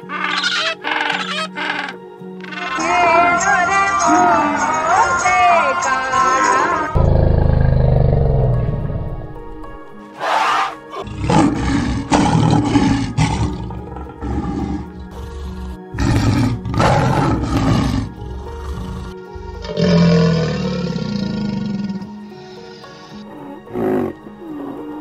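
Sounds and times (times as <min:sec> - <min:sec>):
elephant calling: 0:00.0 - 0:03.2, 0:10.1 - 0:25.0
background music: 0:00.0 - 0:25.0
tiger roaring: 0:07.0 - 0:09.0, 0:10.2 - 0:25.0.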